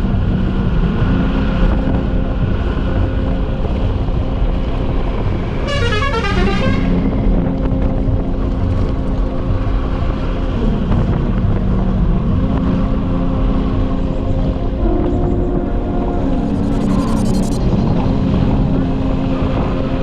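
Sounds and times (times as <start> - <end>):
road and wind noise: 0.0 - 20.0
downward sweeping horn-like tone: 5.6 - 7.1, 14.7 - 17.8.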